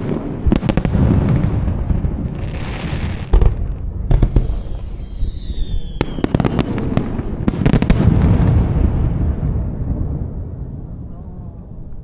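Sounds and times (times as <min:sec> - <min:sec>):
firework crackles: 0:00.0 - 0:11.1
rumbling firework boom: 0:00.0 - 0:12.0
firework whistle falling: 0:04.2 - 0:06.5.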